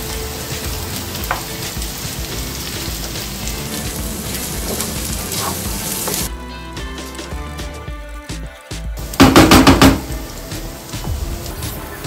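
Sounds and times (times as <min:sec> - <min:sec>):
meat sizzling in a pan: 0:00.0 - 0:07.4, 0:09.0 - 0:12.0
wooden spoon stirring: 0:00.6 - 0:06.3.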